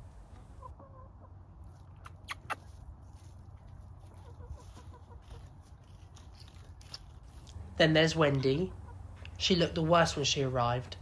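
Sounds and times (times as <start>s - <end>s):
hens clucking softly: 0.3s - 1.4s, 4.1s - 5.6s.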